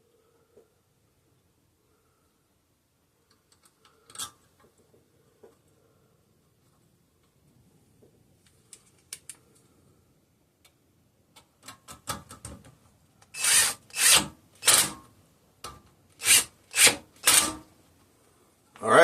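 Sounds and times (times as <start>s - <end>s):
screw rasping as turned by hand: 13.4s - 14.9s, 16.2s - 17.6s.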